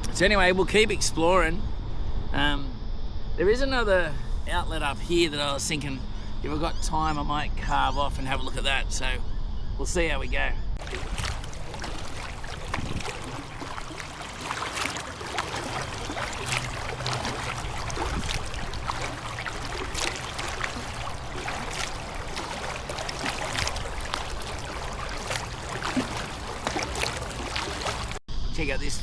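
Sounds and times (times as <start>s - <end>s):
paddle blades splashing: 10.8s - 28.2s
water trickling and dripping: 10.8s - 28.2s.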